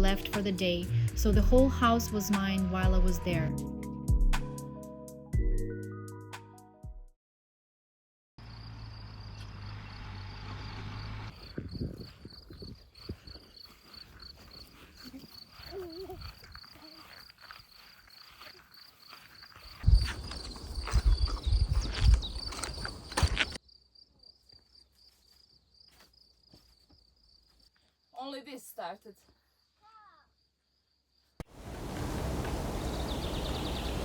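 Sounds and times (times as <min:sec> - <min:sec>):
crickets chirping: 0:08.4 - 0:10.2, 0:11.3 - 0:34.0.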